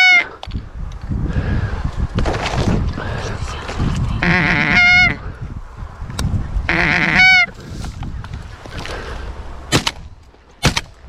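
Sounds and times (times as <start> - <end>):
goose honk: 0.0 - 0.3, 4.2 - 5.2, 6.7 - 7.5
wind rumble on microphone: 0.4 - 11.0.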